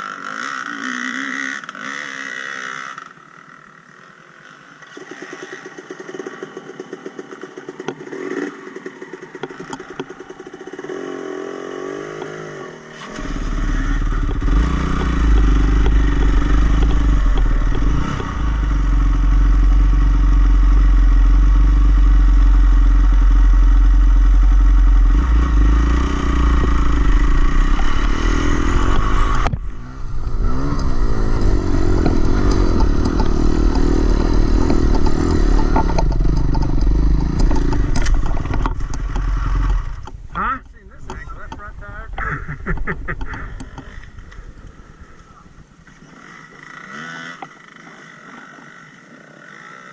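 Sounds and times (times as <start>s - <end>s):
dirt bike engine running: 0.0s - 49.9s
clatter: 4.0s - 11.0s, 13.0s - 29.7s, 30.7s - 40.3s.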